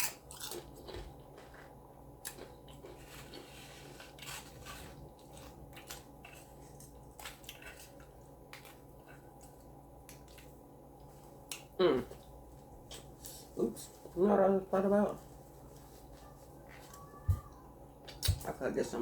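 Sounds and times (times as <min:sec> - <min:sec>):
person chewing food: 0:00.0 - 0:13.4.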